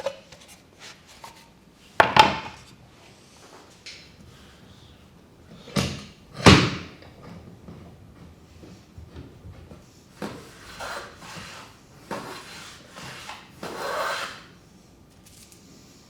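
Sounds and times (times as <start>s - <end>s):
hand tool scraping wood: 10.2s - 14.5s.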